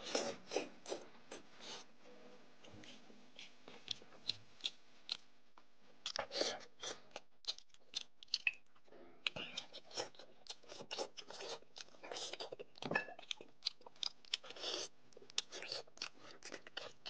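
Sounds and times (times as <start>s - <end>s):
biting and chewing meat: 9.3s - 17.0s.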